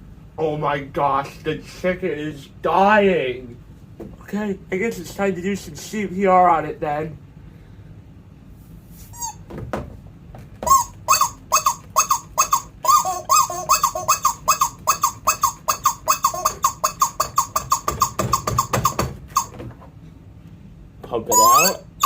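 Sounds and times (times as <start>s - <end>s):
rubber chicken squawking: 10.6s - 19.6s, 21.3s - 22.0s.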